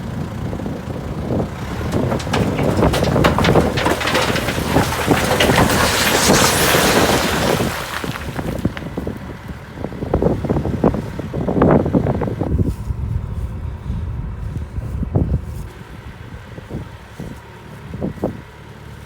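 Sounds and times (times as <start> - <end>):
diesel engine running: 0.0 - 19.0
knocks and clanks: 1.6 - 8.9.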